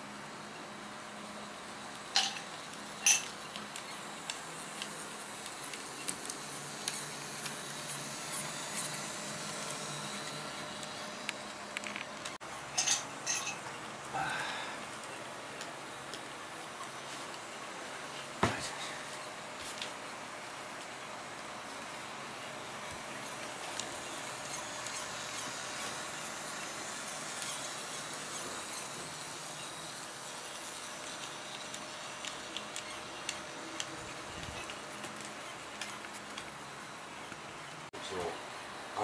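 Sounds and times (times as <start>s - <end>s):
model train motor hum: 1.1s - 12.1s, 21.6s - 37.3s.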